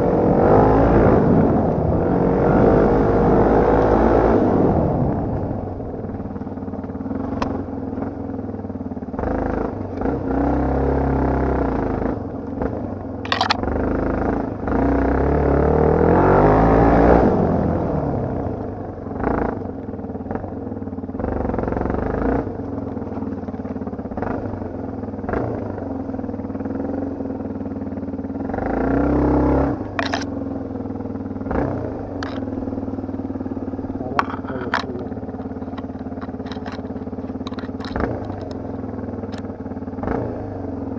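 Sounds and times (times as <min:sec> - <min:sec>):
motorcycle engine revving: 0:00.0 - 0:40.9
sharp knocks and clatter: 0:32.2 - 0:32.5, 0:34.1 - 0:38.6.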